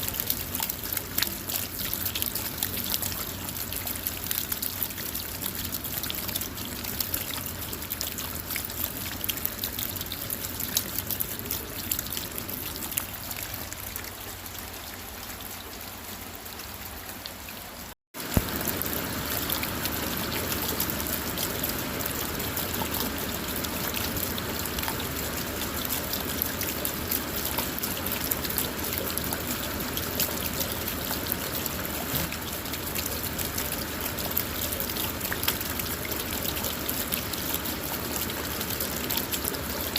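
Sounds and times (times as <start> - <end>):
rain pattering on a car: 0.0 - 39.9
trickling water: 0.0 - 39.9.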